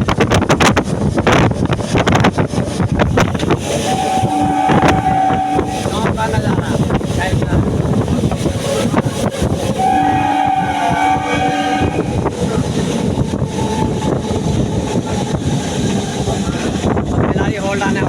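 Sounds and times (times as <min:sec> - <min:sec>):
train rumbling: 0:00.0 - 0:18.0
train horn blast: 0:03.8 - 0:06.3, 0:09.6 - 0:14.8.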